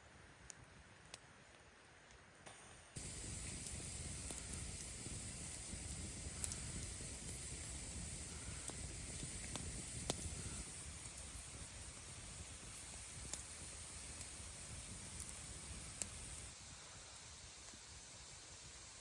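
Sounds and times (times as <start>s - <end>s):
campfire crackling: 0.3s - 18.8s
fire popping: 2.5s - 16.6s.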